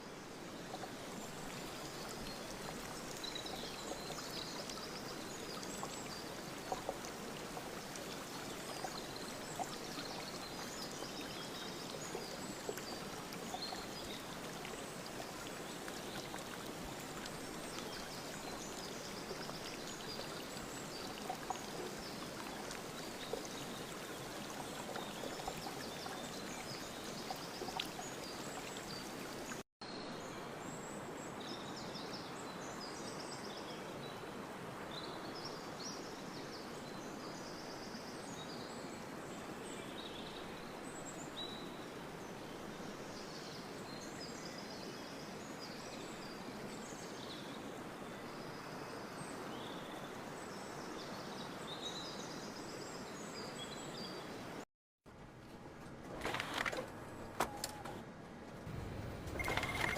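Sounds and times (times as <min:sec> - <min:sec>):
flowing water: 0:00.0 - 0:29.6, 0:30.5 - 0:54.6, 0:55.4 - 0:59.9
faint high chirps: 0:59.0 - 0:59.9.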